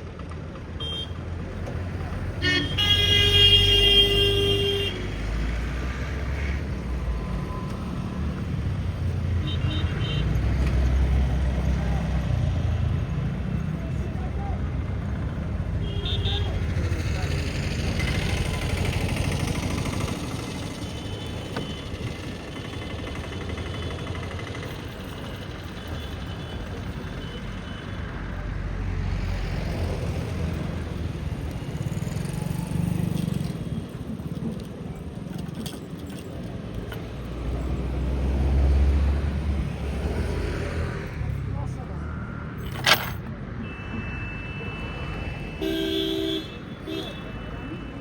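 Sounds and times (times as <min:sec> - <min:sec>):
traffic rumble: 0:00.0 - 0:48.0
vehicle horn: 0:00.8 - 0:01.2, 0:02.4 - 0:05.2, 0:43.6 - 0:48.0.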